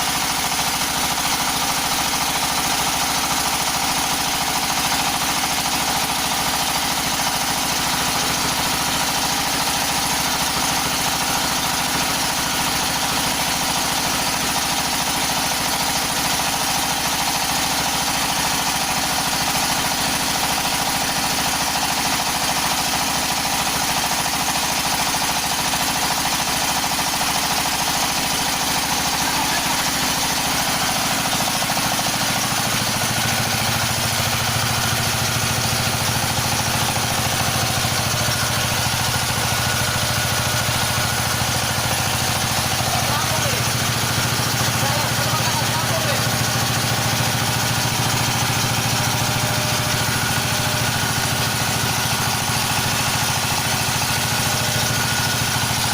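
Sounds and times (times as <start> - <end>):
machine engine drone: 28.8 - 55.9.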